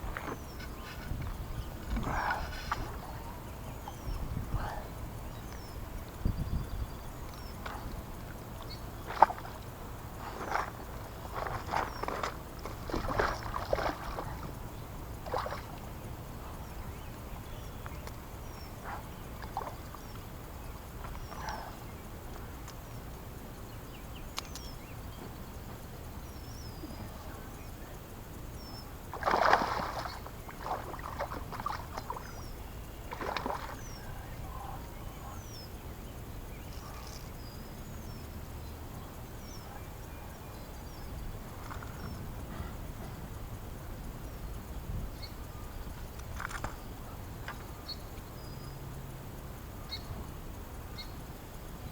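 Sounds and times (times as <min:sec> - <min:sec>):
water splashing around a boat: 0:00.0 - 0:06.4, 0:07.1 - 0:22.8, 0:28.2 - 0:35.6, 0:39.6 - 0:44.2
faint bird chirps: 0:29.6 - 0:43.2.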